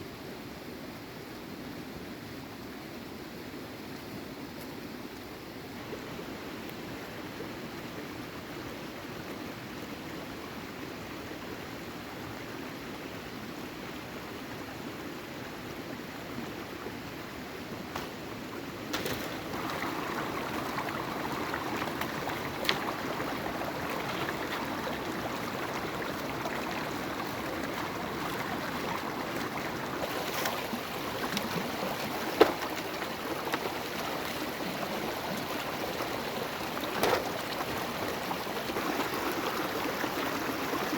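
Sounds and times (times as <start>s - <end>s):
water running: 18.9s - 40.9s.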